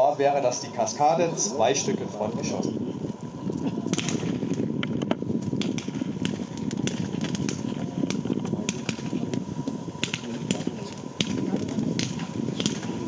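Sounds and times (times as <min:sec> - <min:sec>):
low rumble: 0:00.7 - 0:13.0
fireworks sharp cracks: 0:03.1 - 0:13.0.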